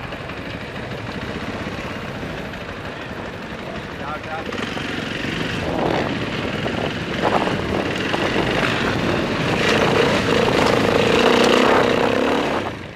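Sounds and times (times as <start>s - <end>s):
motorcycle engines running: 0.0s - 12.9s.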